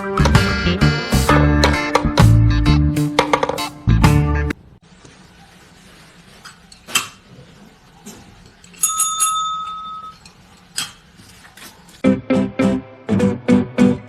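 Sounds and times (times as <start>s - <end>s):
small bell ringing: 8.8s - 10.2s.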